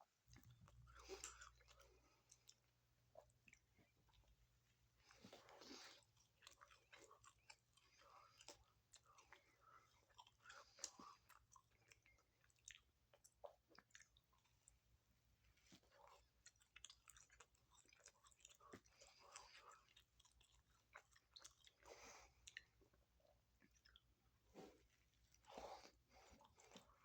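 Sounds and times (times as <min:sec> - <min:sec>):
person chewing: 0:00.3 - 0:04.4, 0:05.0 - 0:14.8, 0:15.6 - 0:27.0.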